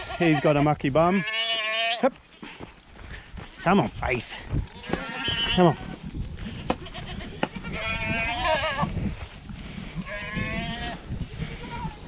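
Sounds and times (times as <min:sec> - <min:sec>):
goats bleating: 0:00.0 - 0:02.4, 0:04.5 - 0:09.0, 0:10.0 - 0:12.0.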